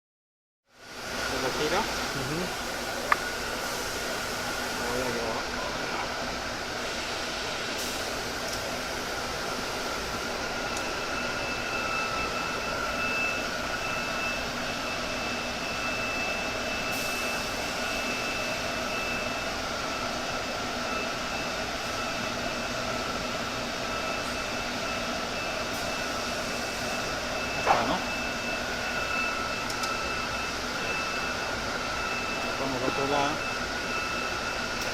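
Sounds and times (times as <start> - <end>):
thin high whine: 0.9 - 8.3.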